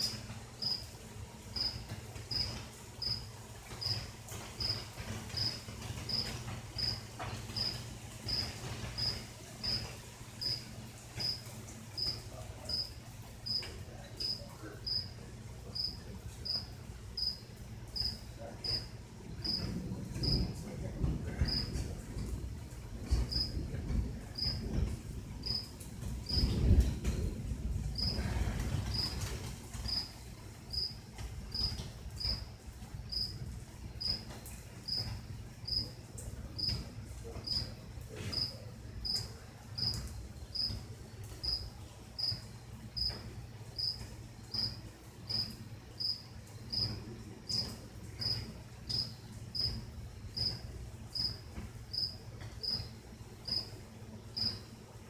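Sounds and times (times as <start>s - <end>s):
cricket chirping: 0.0s - 0.9s, 1.6s - 10.6s, 11.2s - 11.4s, 12.0s - 15.2s, 15.8s - 17.4s, 18.0s - 20.5s, 21.4s - 21.7s, 23.3s - 23.5s, 24.4s - 24.6s, 25.4s - 25.7s, 26.3s - 26.6s, 28.0s - 28.2s, 28.9s - 30.1s, 30.7s - 31.0s, 31.6s - 32.5s, 33.1s - 33.3s, 34.0s - 34.3s, 34.9s - 35.9s, 36.6s - 36.8s, 37.4s - 37.7s, 38.3s - 40.0s, 40.6s - 40.8s, 41.4s - 41.6s, 42.2s - 43.2s, 43.8s - 49.8s, 50.4s - 50.6s, 51.2s - 53.7s, 54.4s - 54.7s.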